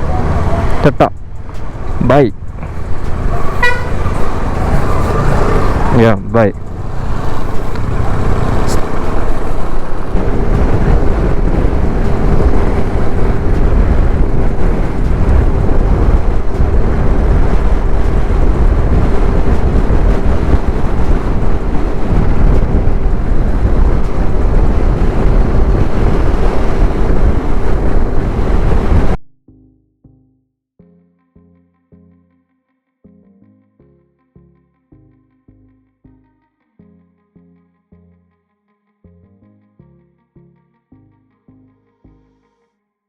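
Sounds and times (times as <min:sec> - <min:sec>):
wind buffeting microphone: 0:00.0 - 0:06.0, 0:06.6 - 0:29.2.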